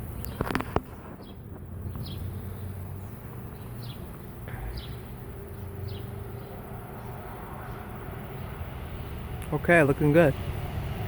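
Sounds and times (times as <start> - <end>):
bird chirping: 0.0 - 9.1.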